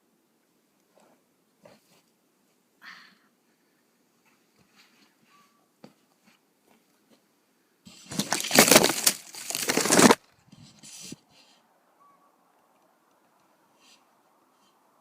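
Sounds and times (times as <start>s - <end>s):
soft rustles: 4.1s - 7.3s
rustling crunching noise: 7.9s - 11.2s.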